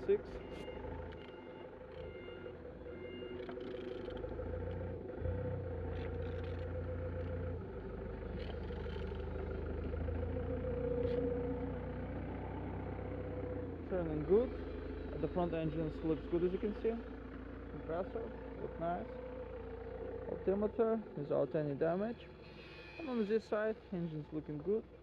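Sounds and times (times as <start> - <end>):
reversing alarm beeping: 0.0 - 4.1, 22.4 - 23.4.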